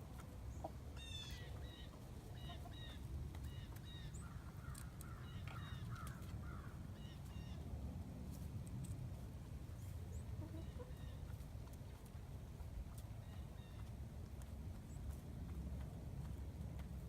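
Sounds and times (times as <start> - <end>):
chickens squawking: 0.6 - 6.2, 10.2 - 11.4.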